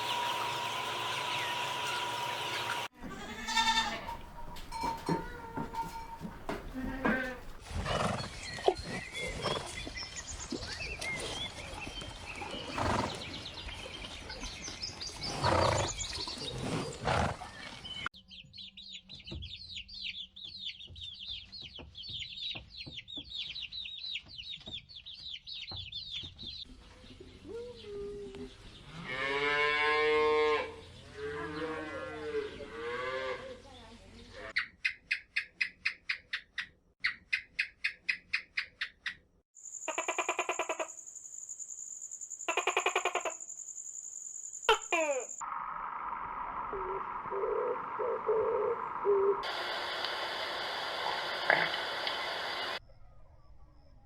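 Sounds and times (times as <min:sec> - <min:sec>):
farmyard animal noise: 0:00.0 - 0:10.2, 0:11.2 - 0:13.5, 0:14.6 - 0:18.0, 0:23.1 - 0:39.2, 0:39.8 - 0:41.0, 0:42.5 - 0:43.4, 0:44.7 - 0:45.4
loud drawn-out animal call: 0:39.9 - 0:40.9, 0:42.5 - 0:43.4.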